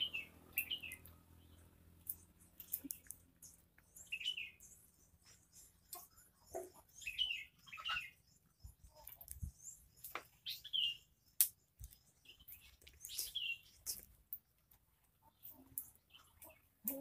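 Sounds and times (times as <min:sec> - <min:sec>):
bird chirps: 0:00.0 - 0:14.0
rustling leaves and twigs: 0:07.0 - 0:17.0.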